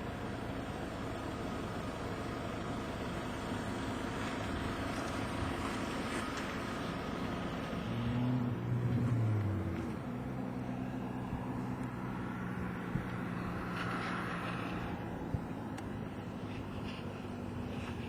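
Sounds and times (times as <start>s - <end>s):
vehicle engine drone: 0.0s - 18.0s.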